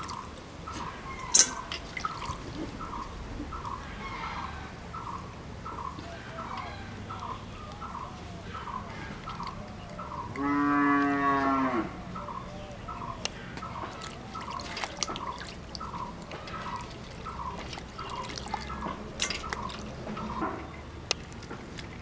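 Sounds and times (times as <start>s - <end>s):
cow mooing: 10.4s - 12.0s.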